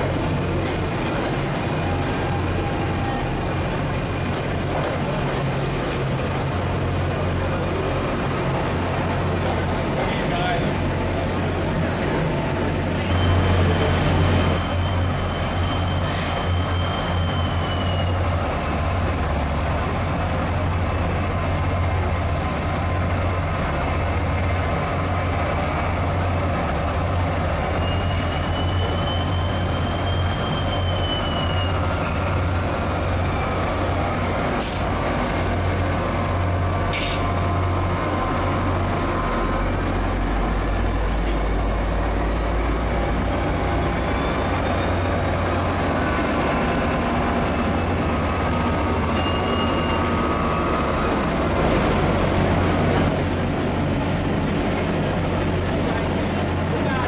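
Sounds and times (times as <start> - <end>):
diesel locomotive engine drone: 0.0 - 57.0
rolling train noise: 0.0 - 57.0
high wheel squeal: 12.9 - 18.5, 27.6 - 34.9, 43.3 - 46.9, 47.7 - 51.3.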